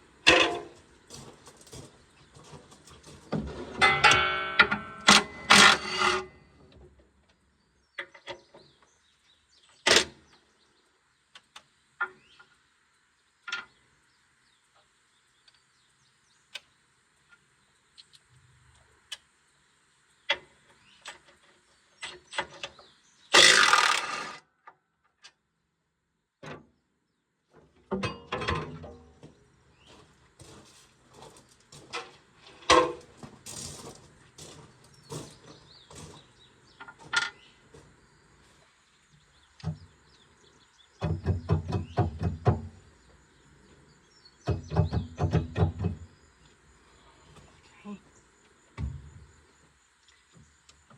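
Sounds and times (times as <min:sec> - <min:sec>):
hand tools clattering on metal: 0:03.8 - 0:06.3, 0:23.4 - 0:24.4.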